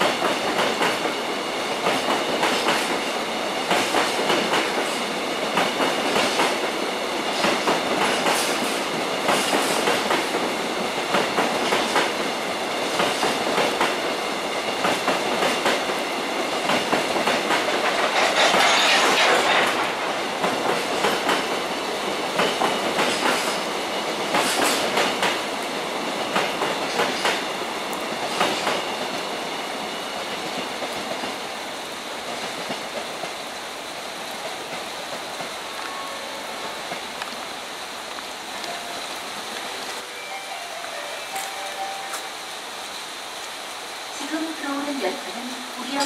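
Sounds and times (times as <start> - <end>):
train wheels clicking over rail joints: 0.0 - 29.4.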